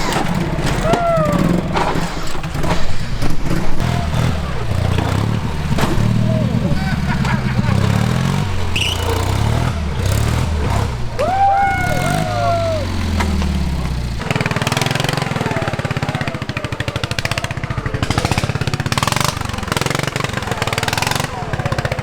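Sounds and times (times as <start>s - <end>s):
mower engines running: 0.0s - 22.0s
rising and falling whoop: 0.6s - 1.8s, 10.7s - 13.7s.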